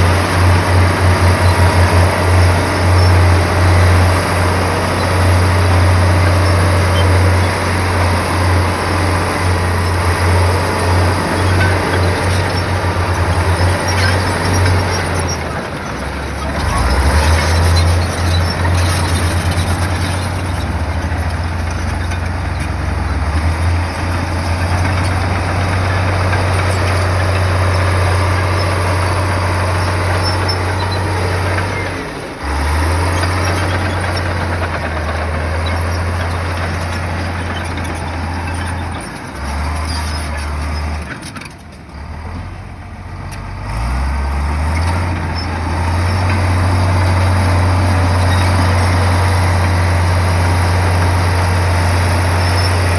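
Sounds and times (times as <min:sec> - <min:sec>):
machinery clatter: 0:00.0 - 0:42.5
heavy diesel engine droning: 0:00.0 - 0:52.9.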